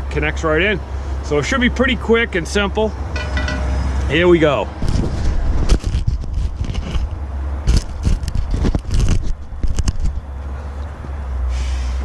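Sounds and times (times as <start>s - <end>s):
hands clicking and scraping parts: 5.7s - 10.2s.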